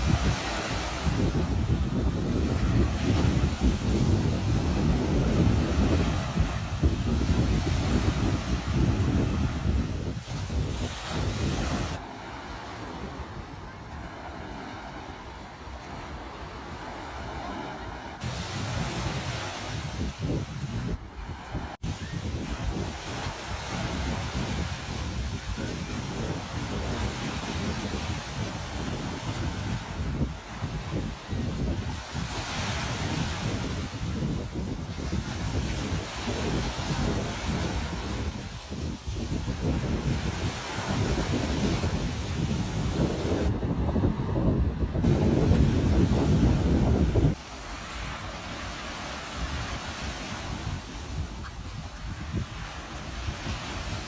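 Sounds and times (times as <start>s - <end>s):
ocean surf on beach: 0.0s - 54.0s
wind buffeting microphone: 0.0s - 54.0s.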